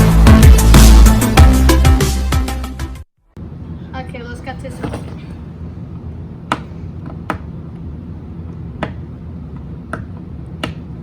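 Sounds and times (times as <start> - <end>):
steady low hum: 3.2 - 11.0.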